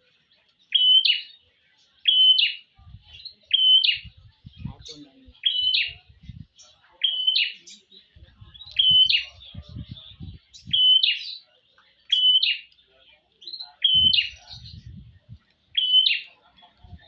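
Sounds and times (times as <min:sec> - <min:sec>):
bird calling: 0:02.0 - 0:08.0, 0:08.6 - 0:11.5, 0:12.1 - 0:12.8, 0:13.5 - 0:17.0
low muffled bumps: 0:08.2 - 0:10.5, 0:14.0 - 0:15.4.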